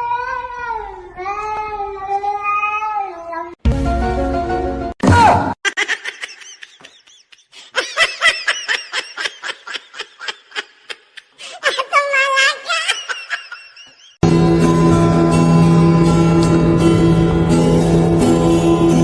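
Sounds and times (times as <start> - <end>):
music: 3.6 - 5.0, 14.2 - 19.0
person laughing: 5.6 - 14.2.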